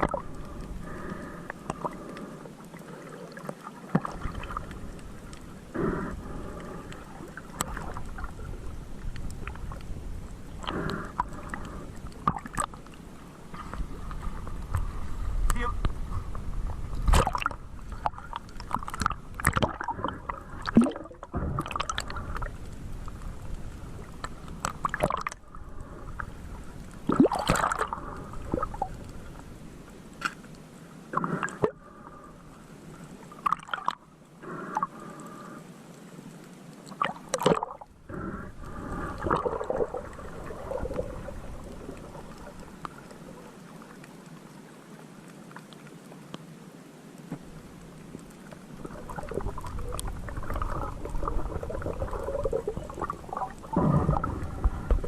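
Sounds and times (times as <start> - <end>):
water gurgling and sloshing: 0.0 - 55.0
splashes and knocks: 17.0 - 19.8, 27.1 - 27.9.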